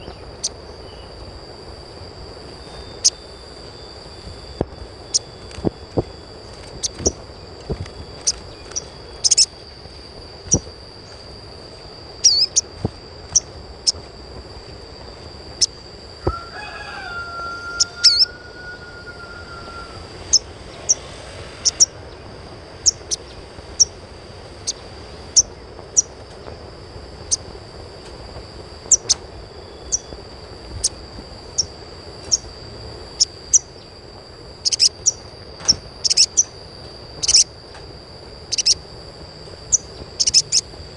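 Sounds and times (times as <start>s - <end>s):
steady high-pitched whine: 0.0s - 40.9s
bird calling in sharp chirps: 2.6s - 5.7s, 6.5s - 9.6s, 12.2s - 12.7s, 15.5s - 24.0s, 34.6s - 36.6s, 37.2s - 37.5s, 38.4s - 38.8s, 39.7s - 40.7s
rooster crowing: 16.1s - 22.0s.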